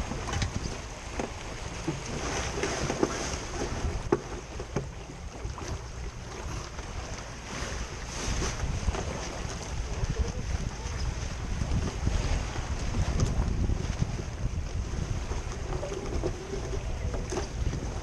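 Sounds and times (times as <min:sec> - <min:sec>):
water splashing along hull: 0:00.0 - 0:18.0
wind noise on microphone: 0:00.0 - 0:18.0.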